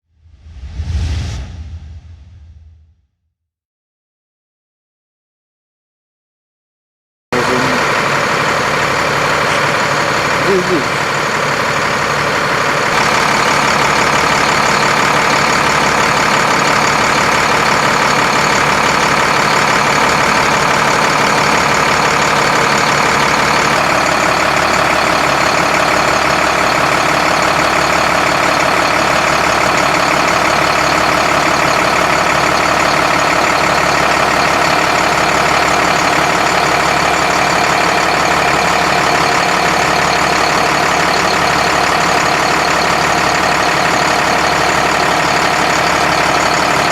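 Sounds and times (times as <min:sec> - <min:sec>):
diesel truck engine running: 0:07.3 - 0:46.9.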